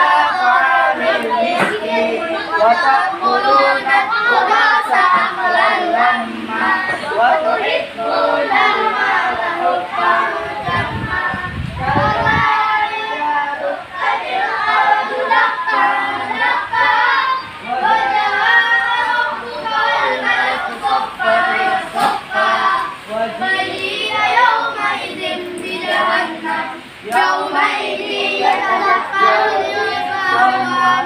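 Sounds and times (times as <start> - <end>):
children chanting in unison: 0.0 - 31.0.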